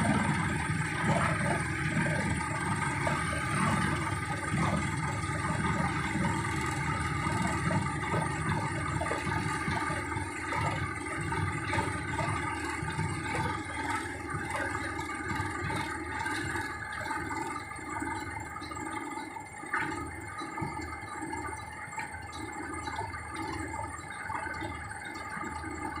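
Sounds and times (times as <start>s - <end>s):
excavator engine running: 0.0s - 18.4s
hydraulic whine: 0.0s - 26.0s.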